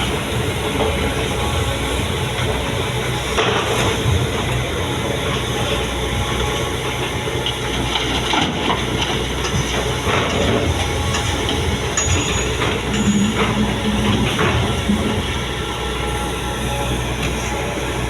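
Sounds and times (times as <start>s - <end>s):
diesel machinery rumbling: 0.0s - 18.0s
metallic clanks and rattles: 7.9s - 15.1s.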